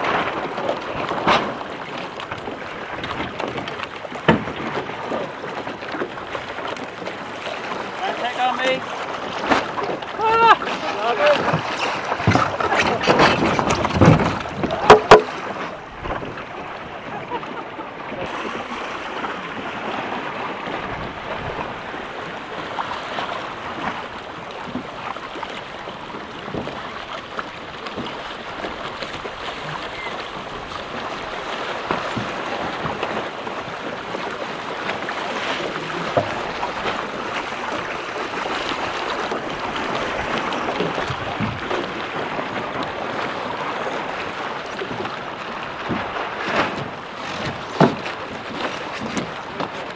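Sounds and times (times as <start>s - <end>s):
water rushing around a boat: 0.0s - 49.9s
wind: 0.0s - 49.9s.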